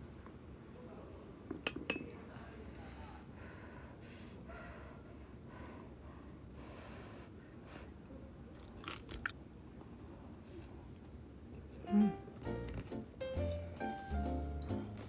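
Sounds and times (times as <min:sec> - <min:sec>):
person chewing crunchy food: 0:08.6 - 0:09.4.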